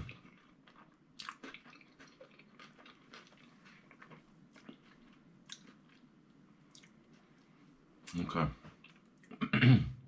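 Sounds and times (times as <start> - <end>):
person chewing with wet smacks: 0.0 - 7.2, 8.8 - 9.4.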